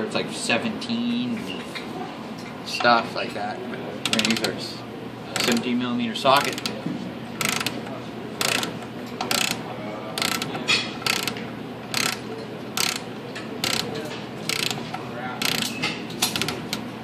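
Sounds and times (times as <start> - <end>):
torque wrench ratchet clicking: 5.4 - 5.7, 6.4 - 6.8, 7.4 - 7.8, 8.4 - 9.6, 10.2 - 12.2, 12.8 - 16.8.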